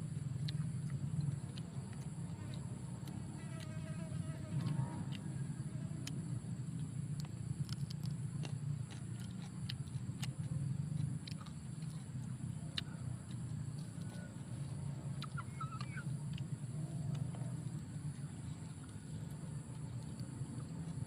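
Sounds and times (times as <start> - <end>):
high insect drone: 0.0 - 15.2
crunchy chewing: 0.0 - 21.0
steady low hum: 0.0 - 21.0
bird chirp: 13.8 - 20.7.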